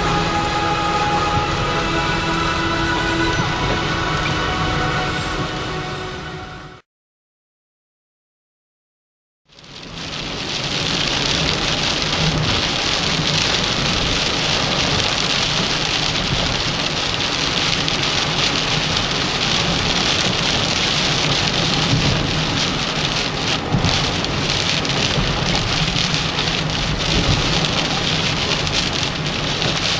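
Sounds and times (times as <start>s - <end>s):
heavy rain pouring: 0.0s - 6.8s, 9.5s - 29.9s
strong wind gusts: 10.1s - 29.9s.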